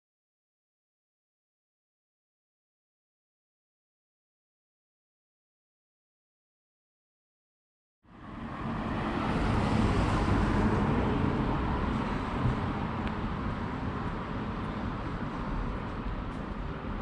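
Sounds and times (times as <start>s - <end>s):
traffic rumble: 8.1s - 17.0s.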